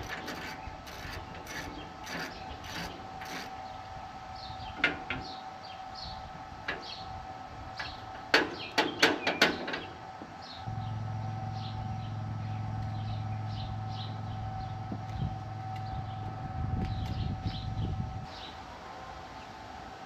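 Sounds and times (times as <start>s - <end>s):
birds chirping: 7.8s - 18.6s
faint steady tone: 10.6s - 20.0s.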